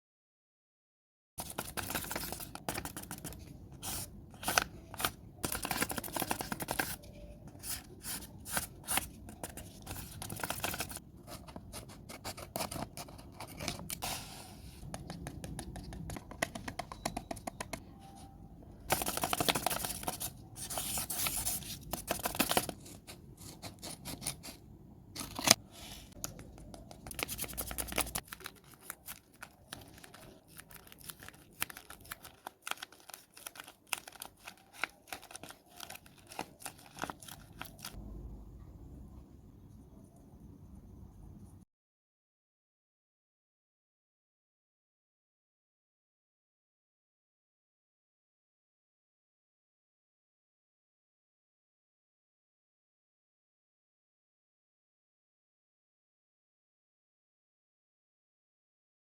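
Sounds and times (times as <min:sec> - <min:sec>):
paper rustling: 0:01.4 - 0:16.9, 0:18.9 - 0:24.6, 0:25.2 - 0:38.0
scissors snipping paper: 0:26.2 - 0:38.0.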